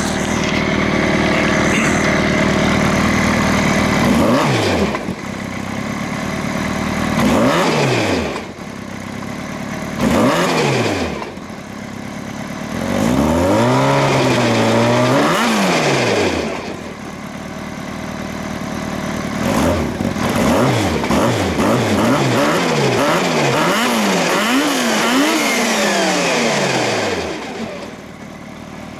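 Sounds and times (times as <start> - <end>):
snowmobile engine revving: 0.0 - 5.2, 7.1 - 8.6, 10.0 - 11.4, 12.7 - 16.8, 19.4 - 28.1.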